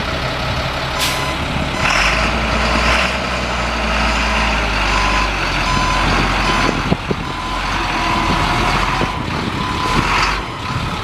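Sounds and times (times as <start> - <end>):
truck engine running: 0.0 - 11.0
back-up alarm beeping: 4.9 - 10.8.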